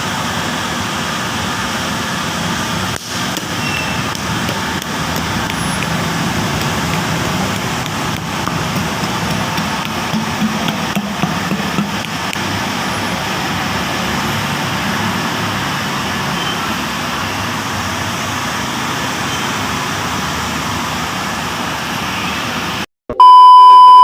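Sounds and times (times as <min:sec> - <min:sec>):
steady background noise: 0:00.0 - 0:22.8
loud steady beep tone: 0:23.1 - 0:24.0.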